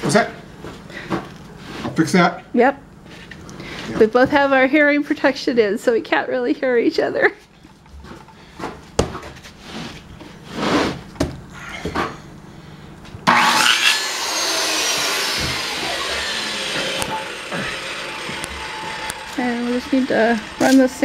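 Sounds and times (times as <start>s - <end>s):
power tool running on wood: 13.3s - 21.0s.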